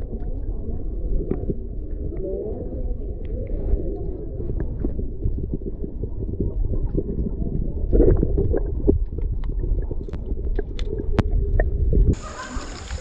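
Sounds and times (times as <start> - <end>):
water gurgling around kayak: 0.0 - 13.0.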